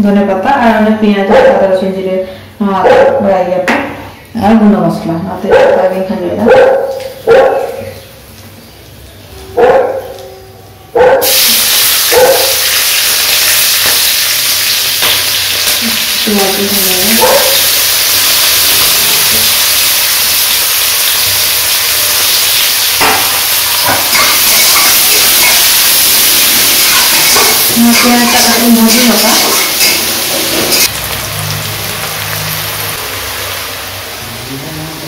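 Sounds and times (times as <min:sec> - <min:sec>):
chillies and onions sizzling in oil: 0:11.2 - 0:35.0.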